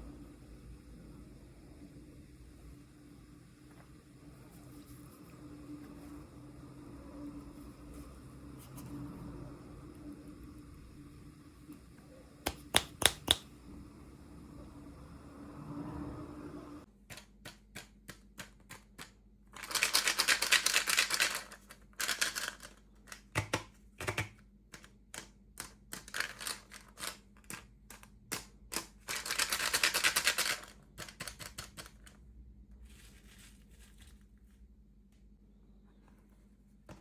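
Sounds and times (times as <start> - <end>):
plastic toy pieces clicking: 17.1 - 32.2.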